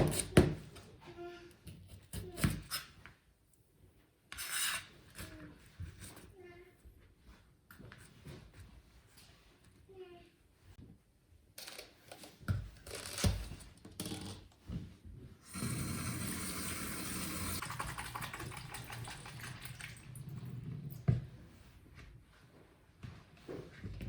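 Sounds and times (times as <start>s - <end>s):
tap water running into sink: 15.6s - 21.0s.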